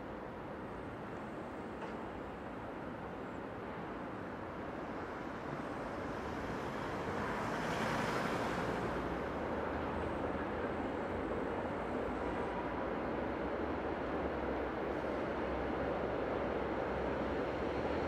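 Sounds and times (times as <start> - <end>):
wheels rumbling on rail: 0.1 - 18.0.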